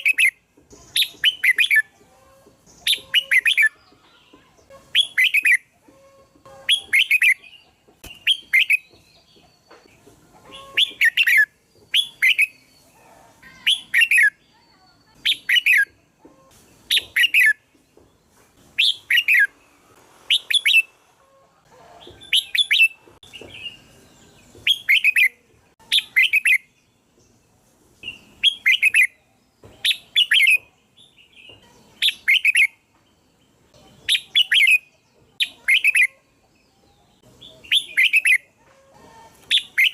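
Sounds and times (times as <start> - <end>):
bulbul singing chirpy phrases: 13.4 - 16.0, 33.7 - 36.5, 37.1 - 38.6.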